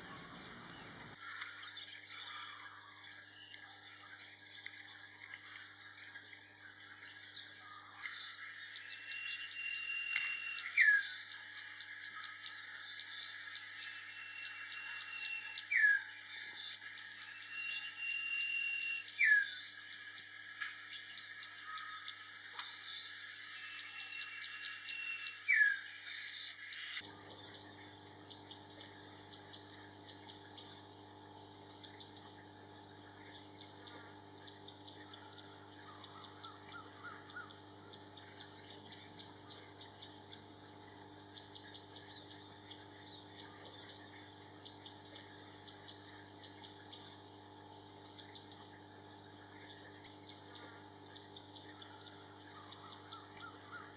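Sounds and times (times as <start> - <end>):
insects humming: 0.0 - 1.2, 8.1 - 53.9
loud high buzzing: 0.0 - 1.2
wild birds calling: 0.0 - 1.2, 27.0 - 47.4, 49.5 - 53.9.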